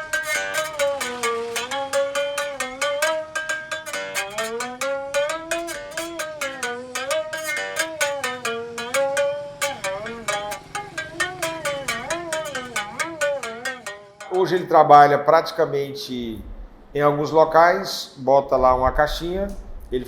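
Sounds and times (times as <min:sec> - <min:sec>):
berimbau string struck: 0:00.0 - 0:14.9.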